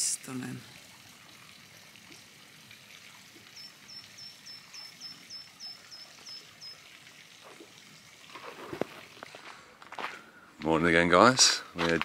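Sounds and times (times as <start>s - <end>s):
faint outdoor hiss: 0.0s - 12.0s
songbird calling high notes: 3.5s - 6.8s.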